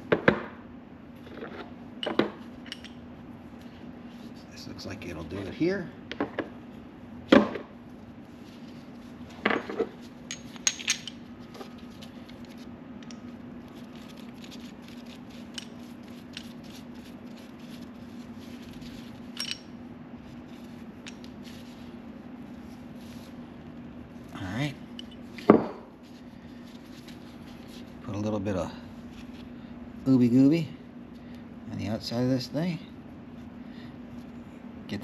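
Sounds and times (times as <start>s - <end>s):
steady low hum: 0.0s - 35.0s
metal parts clinking and knocking: 9.4s - 11.3s, 19.3s - 19.7s.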